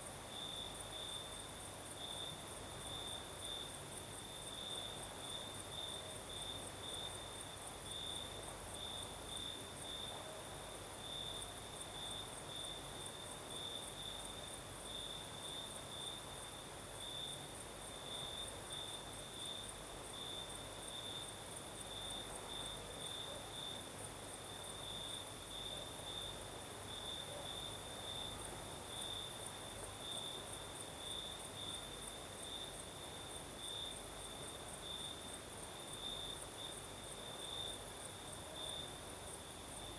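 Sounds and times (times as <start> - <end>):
crickets chirping: 0.1 - 39.9
insects trilling: 23.6 - 34.0.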